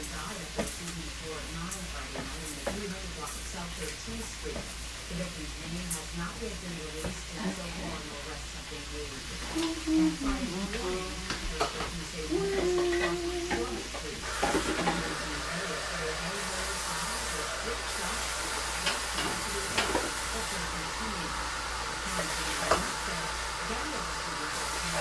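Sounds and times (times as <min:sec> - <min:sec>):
faint voice: 0:00.0 - 0:25.0
rice sizzling in a saucepan: 0:00.0 - 0:25.0.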